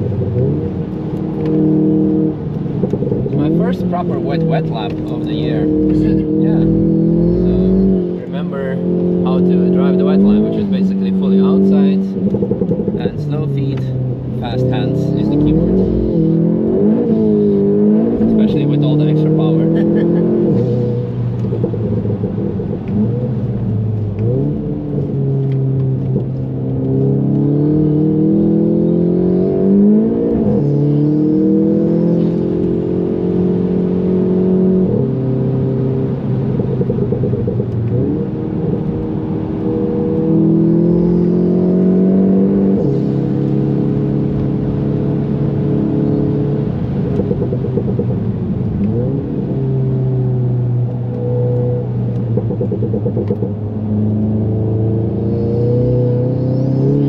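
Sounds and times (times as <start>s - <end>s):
car engine under hard driving: 0.0s - 57.0s.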